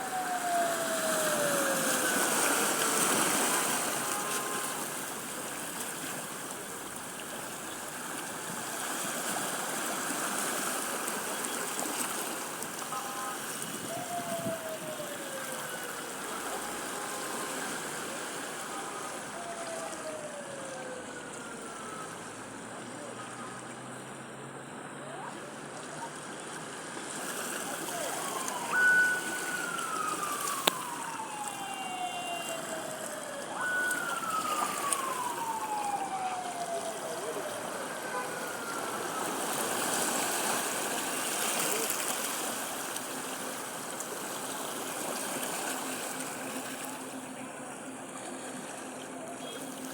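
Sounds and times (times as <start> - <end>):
siren-like sliding tones: 0.0 - 5.0, 27.4 - 40.8
sea waves on a beach: 0.0 - 49.9.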